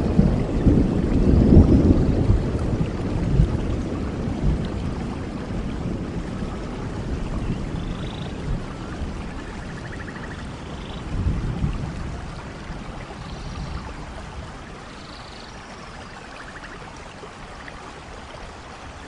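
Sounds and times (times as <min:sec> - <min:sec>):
distant thunder rumble: 0:00.0 - 0:14.9
steady rainfall: 0:00.0 - 0:19.0.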